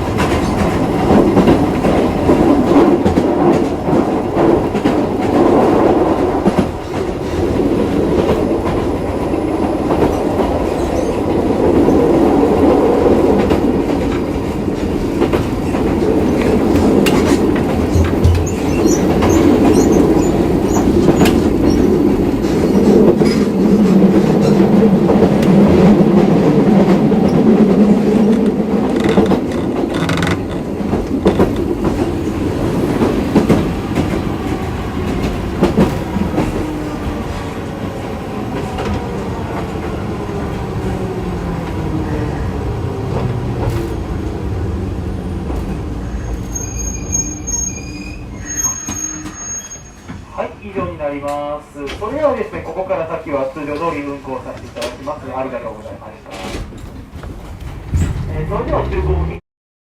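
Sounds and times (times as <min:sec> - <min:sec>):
tram motors growling: 0:11.4 - 0:46.6, 0:57.0 - 0:59.4
clicks over rail joints: 0:28.3 - 0:32.2.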